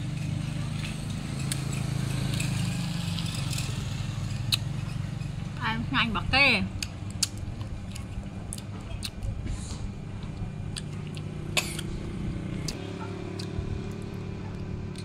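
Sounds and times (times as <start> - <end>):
steady low hum: 3.2 - 15.0
person chewing berries: 6.8 - 15.0.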